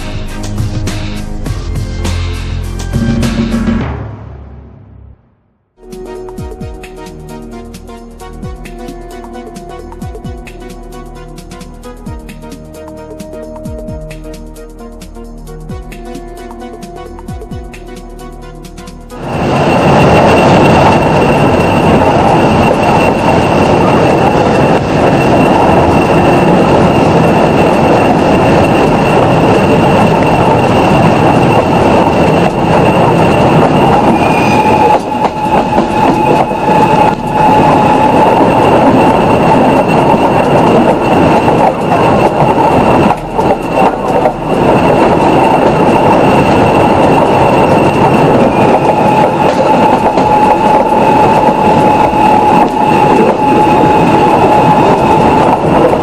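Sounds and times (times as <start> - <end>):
train rolling on track: 0.0 - 4.4, 5.8 - 56.0
high wheel squeal: 19.1 - 56.0.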